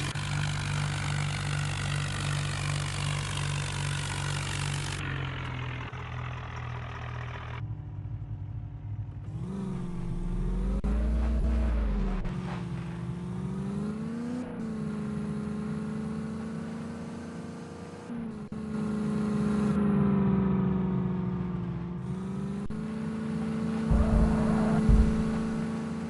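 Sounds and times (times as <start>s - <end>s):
tractor diesel engine running: 0.0s - 9.3s, 22.7s - 26.0s
heavy low thumps: 23.9s - 25.6s.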